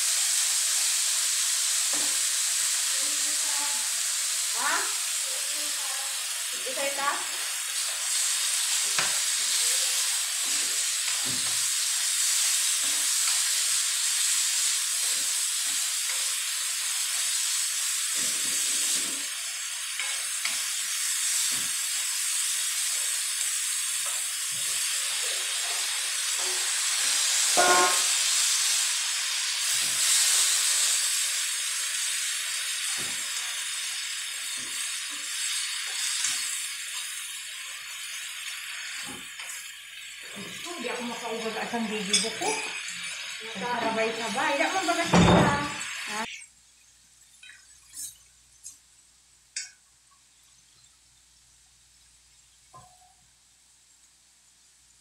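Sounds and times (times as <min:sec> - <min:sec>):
meat sizzling in a wok: 0:00.0 - 0:55.0
spatula scraping wok: 0:07.3 - 0:20.7.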